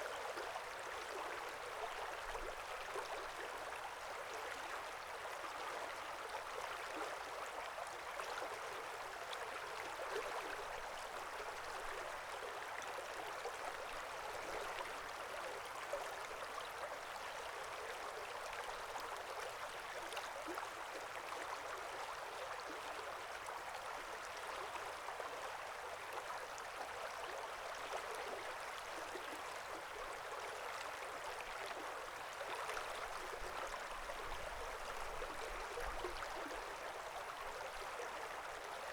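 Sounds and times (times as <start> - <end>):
brook babbling over stones: 0.2 - 38.9.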